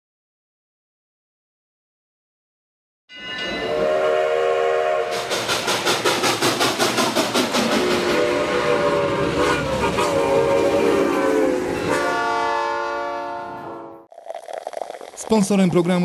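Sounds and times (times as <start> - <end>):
train whistle: 3.6 - 5.5, 7.7 - 14.0
locomotive chugging: 5.1 - 8.4.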